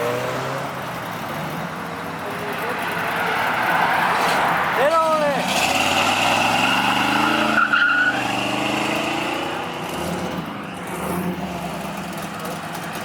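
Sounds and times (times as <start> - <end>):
car accelerating hard: 2.3 - 13.0
tire squeal: 2.6 - 10.4.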